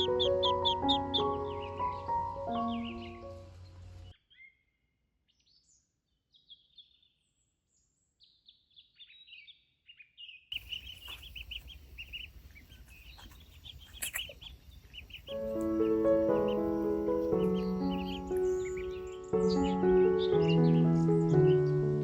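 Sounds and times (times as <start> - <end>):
ducklings peeping: 0.0 - 4.5, 10.6 - 22.0
background noise: 3.1 - 19.8.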